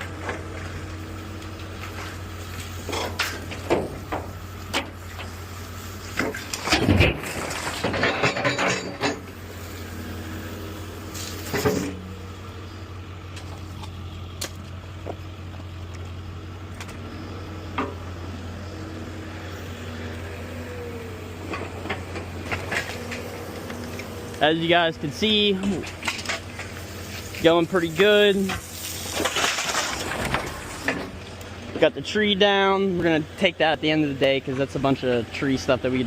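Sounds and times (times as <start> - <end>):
demolition machine engine running: 0.0 - 36.0
metallic clanks and crashing debris: 1.8 - 5.4, 6.0 - 9.5, 25.3 - 31.2.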